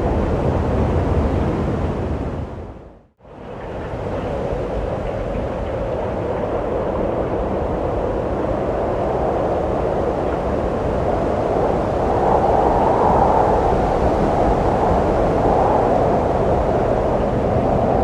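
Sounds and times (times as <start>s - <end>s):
wind blowing and gusting: 0.0s - 18.0s.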